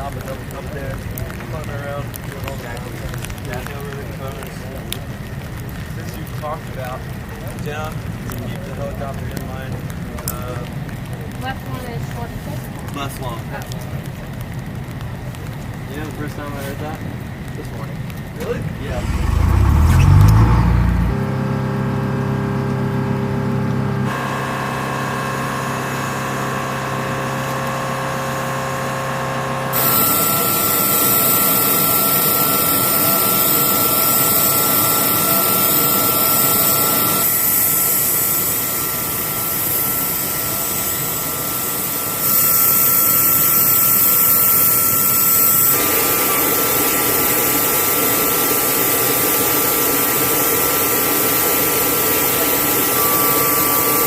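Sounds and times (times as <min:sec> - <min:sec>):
helicopter turbine whine: 0:15.8 - 0:21.6, 0:24.0 - 0:54.0
helicopter rotor hum: 0:16.0 - 0:22.6, 0:23.2 - 0:54.0.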